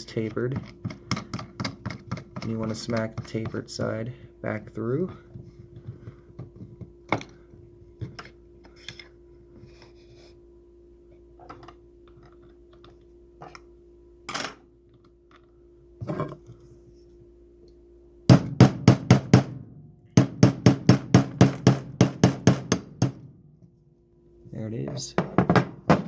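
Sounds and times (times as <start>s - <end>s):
hammer tapping metal punch: 0.0s - 4.0s, 18.3s - 19.5s, 20.2s - 23.2s, 25.0s - 26.0s.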